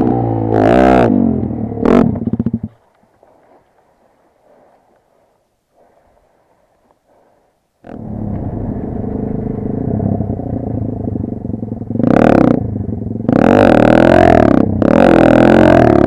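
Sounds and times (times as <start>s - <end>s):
motorcycle engine idling and revving: 0.0s - 3.4s, 7.8s - 16.0s.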